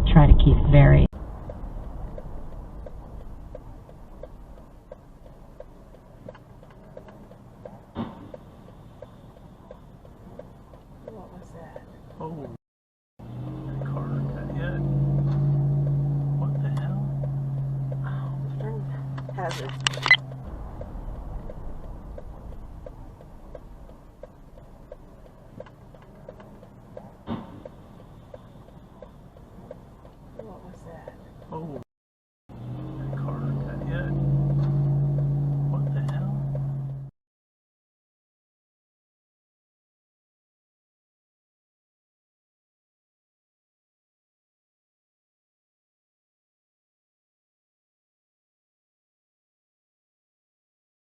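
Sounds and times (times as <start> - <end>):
engine and road rumble: 0.0 - 12.6, 13.2 - 31.9, 32.5 - 37.2
turn signal ticking: 1.1 - 12.6, 13.2 - 31.8, 32.5 - 37.1.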